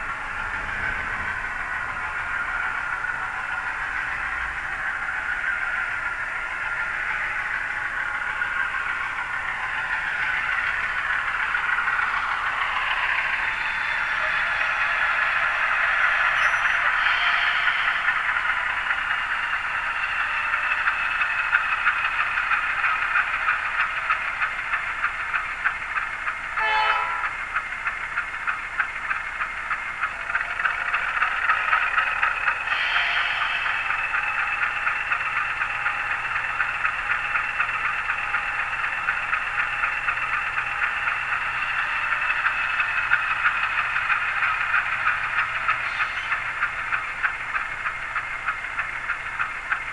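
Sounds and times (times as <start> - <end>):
tinny diesel engine sound: 0.0 - 49.9
fast fine ticking: 1.7 - 49.9
short horn toot: 26.6 - 27.2.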